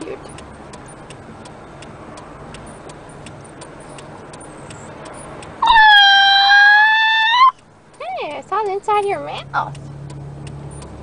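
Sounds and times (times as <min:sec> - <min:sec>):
faint regular ticking: 0:00.0 - 0:05.6, 0:07.5 - 0:11.0
puppy screaming: 0:05.6 - 0:07.5.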